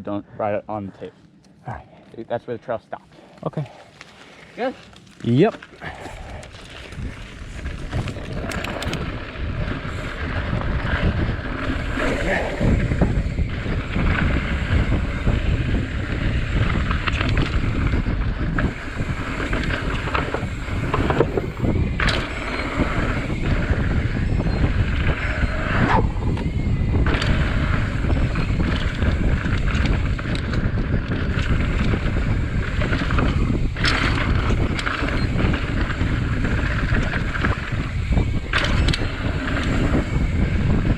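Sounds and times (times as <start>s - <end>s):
mountain bike rolling on dirt: 3.7s - 40.9s
wind buffeting microphone: 5.3s - 40.9s
bike knocks and rattles: 26.3s - 40.9s.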